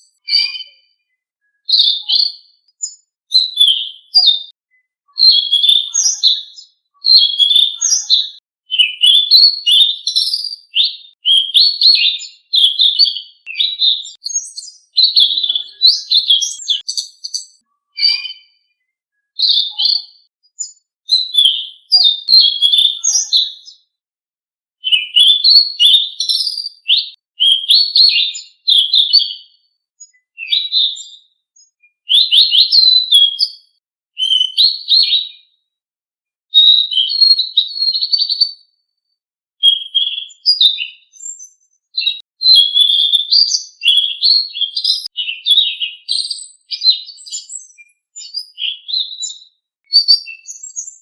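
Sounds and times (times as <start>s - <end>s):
songbird chirping: 0.0s - 23.9s.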